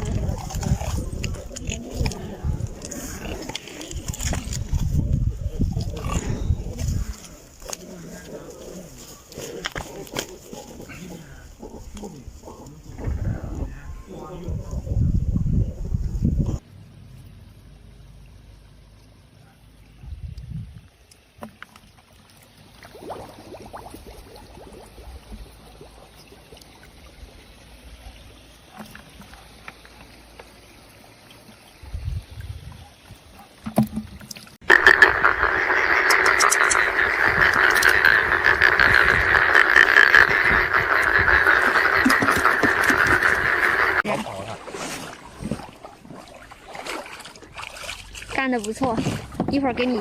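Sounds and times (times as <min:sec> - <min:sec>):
rapid croaking calls: 0:34.6 - 0:44.1.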